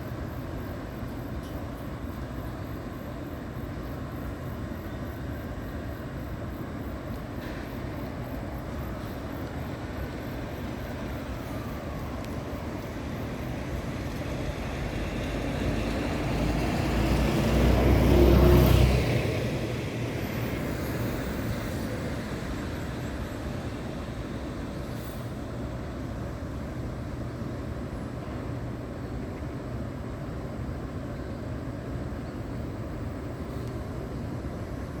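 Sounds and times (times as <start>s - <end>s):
traffic noise: 0.0s - 35.0s
vehicle passing by: 14.8s - 23.2s.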